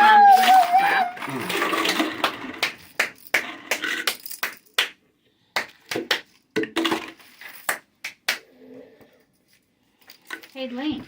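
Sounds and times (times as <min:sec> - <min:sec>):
hands clapping: 0:01.8 - 0:05.0, 0:05.6 - 0:06.4, 0:07.6 - 0:08.5.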